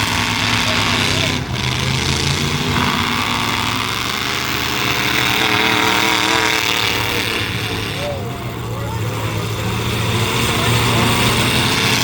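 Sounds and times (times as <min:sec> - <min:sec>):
truck engines revving loudly: 0:00.0 - 0:12.0.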